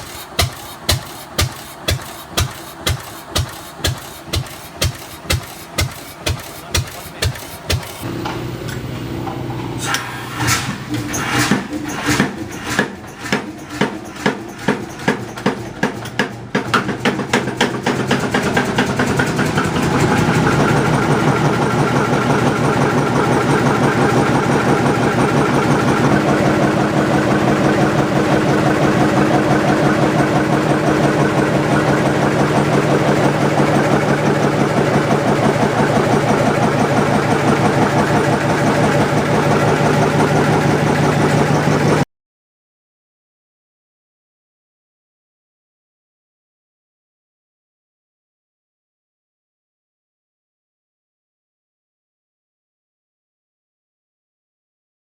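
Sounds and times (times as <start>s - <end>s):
old engine exhaust beats: 0.0s - 42.0s.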